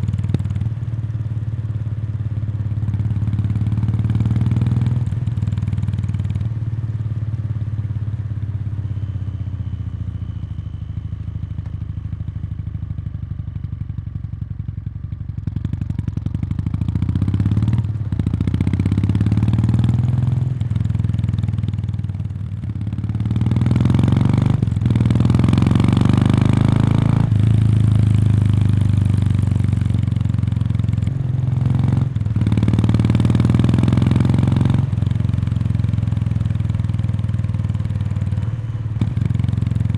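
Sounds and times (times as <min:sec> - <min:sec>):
motorcycle exhaust note: 0:23.5 - 0:39.9.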